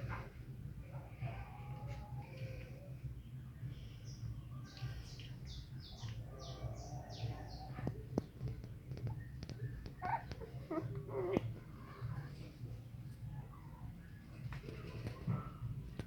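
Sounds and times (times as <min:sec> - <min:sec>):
puppies squeaking: 0:09.0 - 0:11.7
puppies whimpering: 0:09.1 - 0:12.3.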